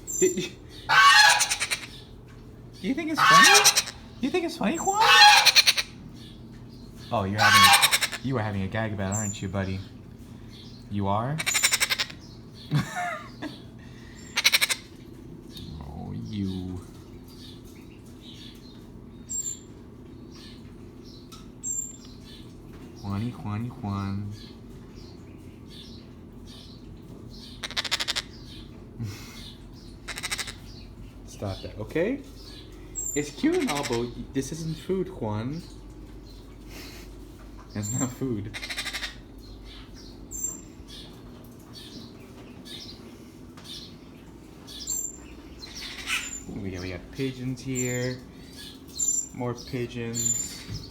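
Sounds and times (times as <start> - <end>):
faint bird twittering: 0.0 - 50.9.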